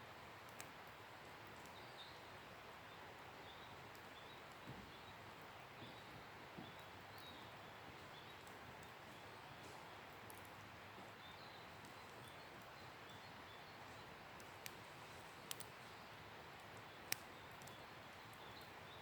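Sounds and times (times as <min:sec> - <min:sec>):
fire crackling pops: 0:00.2 - 0:02.0, 0:08.0 - 0:19.0
campfire hissing: 0:06.3 - 0:19.0.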